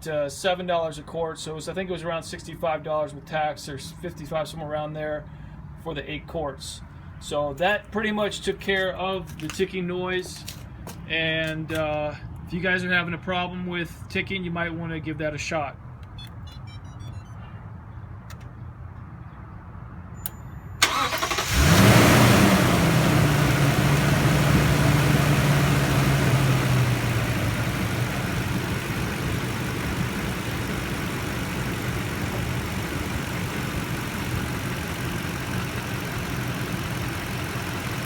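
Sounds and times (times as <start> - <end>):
truck engine starting and idling: 20.8 - 38.0.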